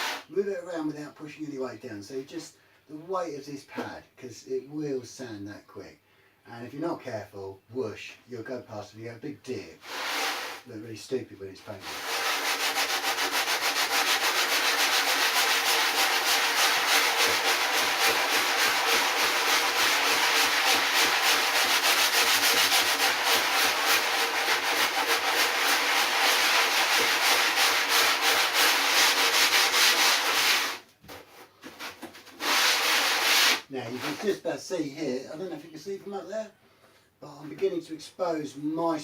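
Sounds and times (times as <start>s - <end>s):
power sander on foam: 11.8s - 30.8s.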